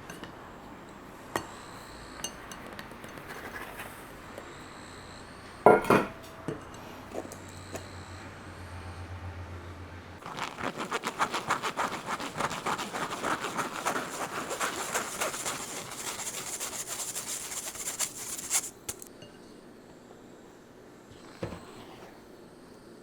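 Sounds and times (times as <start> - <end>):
rhythmic scraping and rubbing strokes: 10.2 - 19.1.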